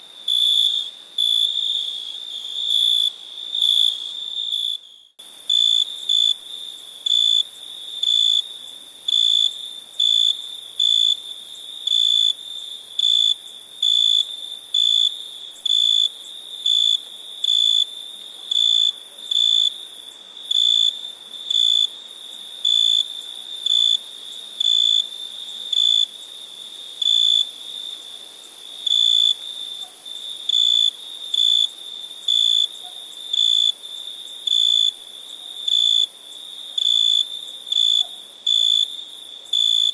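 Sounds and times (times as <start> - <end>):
cricket chirping: 0.0 - 39.9
faint steady cricket trill: 0.0 - 39.9.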